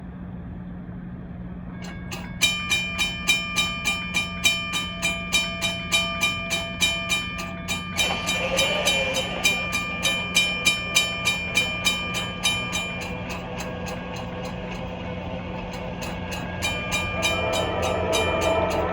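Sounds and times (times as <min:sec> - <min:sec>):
approaching train noise: 0:00.9 - 0:18.9
crossing bell ringing: 0:01.8 - 0:18.9.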